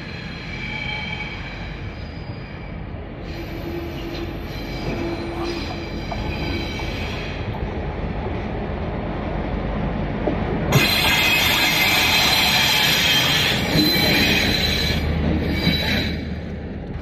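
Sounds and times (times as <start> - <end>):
steel wheels squealing on rails: 0.0 - 7.6, 10.7 - 16.6
freight train rumbling past: 0.0 - 17.0.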